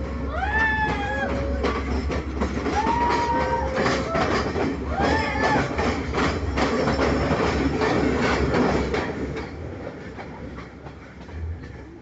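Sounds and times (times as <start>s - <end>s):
train wheels clattering on rails: 0.0s - 12.0s.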